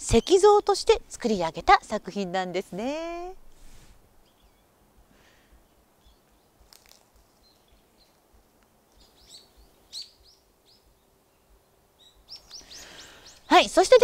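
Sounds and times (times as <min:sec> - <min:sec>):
faint bird chirps: 0:04.2 - 0:04.8, 0:08.9 - 0:13.8.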